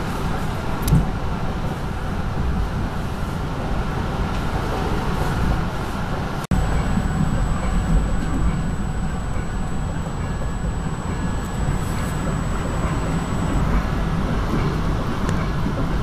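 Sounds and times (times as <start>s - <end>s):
train wheels rumbling on rail: 0.0s - 10.4s, 11.1s - 16.0s
thin high whine: 6.5s - 15.8s.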